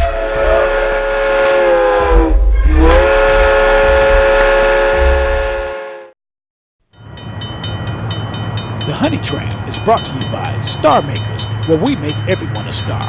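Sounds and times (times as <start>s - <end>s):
steam locomotive whistle: 0.0s - 6.2s.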